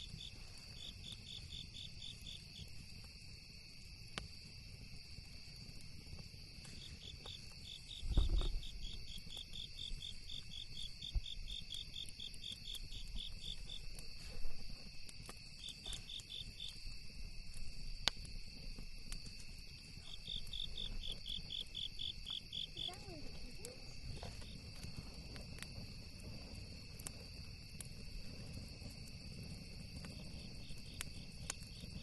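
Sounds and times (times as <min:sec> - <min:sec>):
campfire crackling pops: 0:00.0 - 0:32.0
crickets chirping: 0:00.0 - 0:32.0
nearby cricket trilling: 0:06.7 - 0:14.7.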